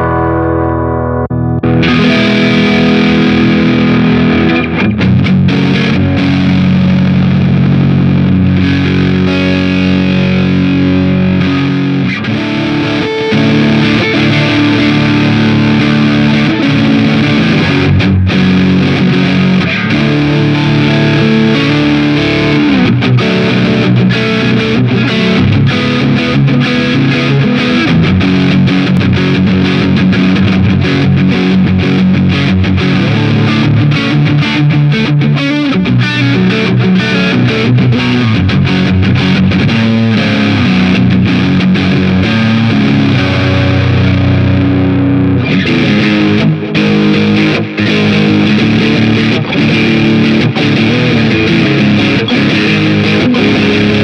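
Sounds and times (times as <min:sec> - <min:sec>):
distorted electric guitar: 0:00.0 - 0:54.0.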